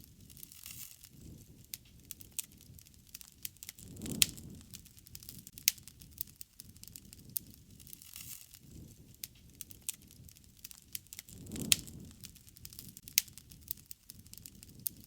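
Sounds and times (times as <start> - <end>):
fire popping and snapping: 0.0 - 15.0
wood fire crackling: 0.0 - 15.0.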